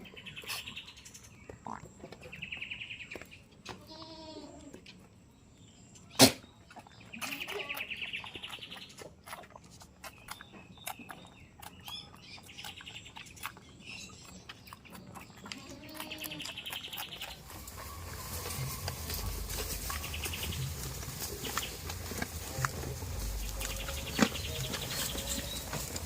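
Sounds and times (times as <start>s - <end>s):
small bird buzzy chatter: 6.1s - 17.8s.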